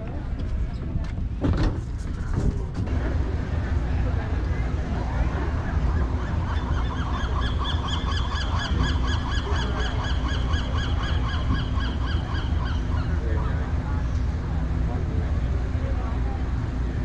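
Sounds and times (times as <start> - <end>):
ferry engines idling: 0.0 - 17.0.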